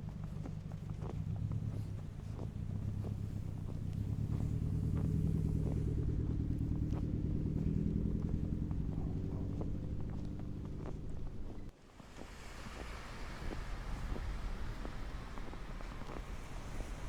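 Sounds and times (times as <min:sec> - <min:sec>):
vehicle engine humming: 0:00.2 - 0:11.7.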